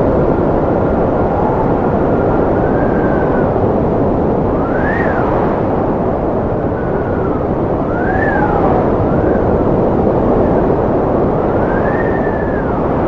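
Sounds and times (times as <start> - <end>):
strong wind howling: 0.0 - 13.0.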